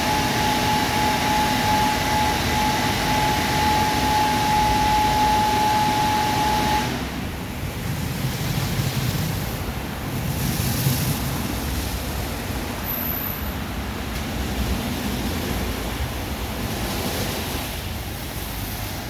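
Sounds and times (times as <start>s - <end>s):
steady machine whine: 0.0s - 9.7s
car wash rush of air or water: 0.0s - 19.0s.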